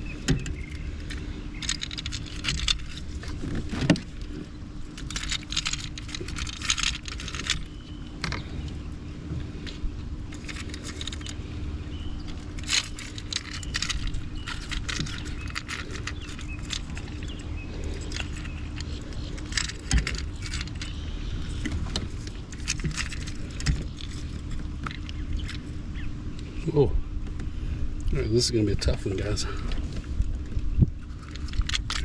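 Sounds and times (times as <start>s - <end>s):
fishing tackle jangling and clicking: 0.3s - 8.6s, 10.3s - 25.7s, 31.0s - 32.0s.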